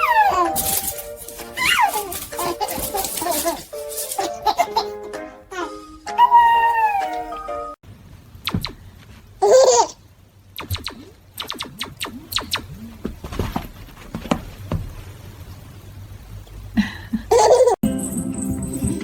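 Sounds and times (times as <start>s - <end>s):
baby babbling: 0.0s - 0.7s
baby squealing: 0.0s - 0.8s, 1.6s - 4.9s, 5.5s - 7.4s.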